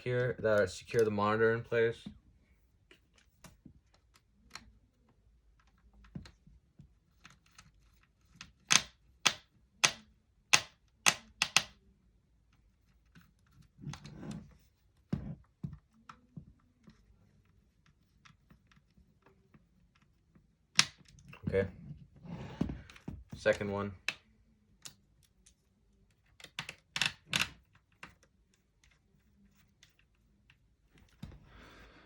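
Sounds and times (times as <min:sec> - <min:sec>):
sharp plastic clicks: 0:08.4 - 0:11.8, 0:26.3 - 0:28.2.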